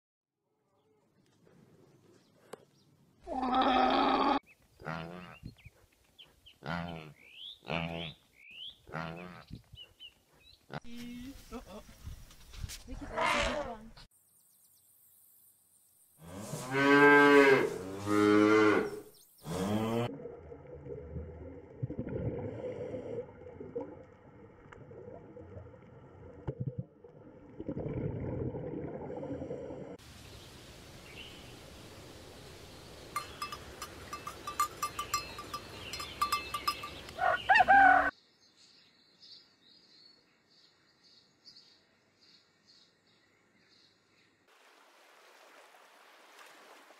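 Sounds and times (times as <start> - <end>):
cow mooing: 16.4 - 20.1
faint high chirping: 33.1 - 37.6.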